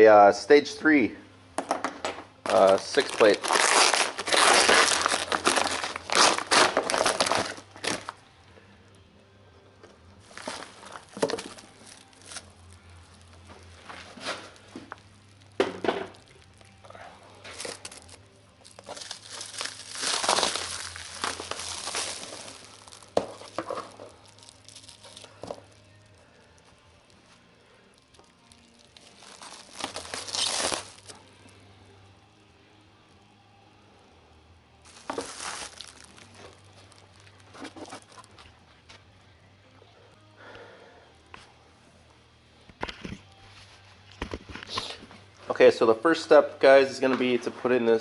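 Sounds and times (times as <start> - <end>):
packaging crinkling and tearing: 2.5 - 8.2, 10.2 - 26.3, 27.7 - 31.2, 34.9 - 38.5.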